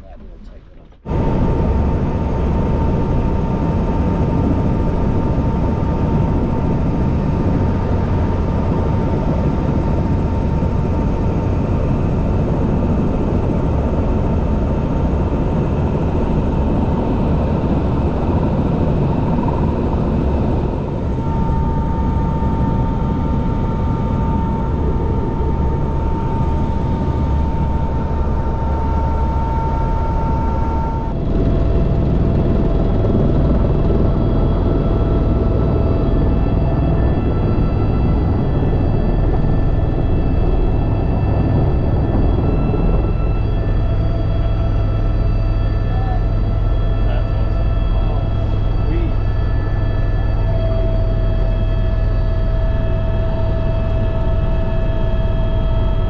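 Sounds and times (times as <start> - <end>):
helicopter rotor and engine drone: 0.0 - 56.0
high turbine whine: 0.0 - 56.0.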